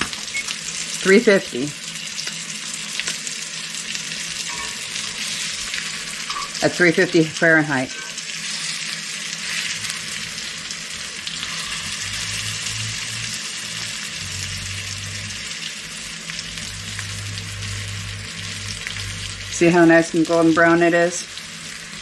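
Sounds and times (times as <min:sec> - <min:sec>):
meat sizzling in a pan: 0:00.0 - 0:22.0
low hum: 0:11.2 - 0:20.8.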